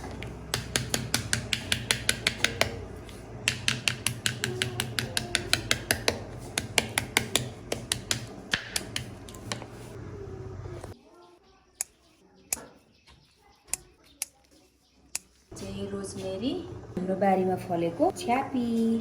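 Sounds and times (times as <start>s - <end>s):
knife chopping on cutting board: 0.0s - 9.8s.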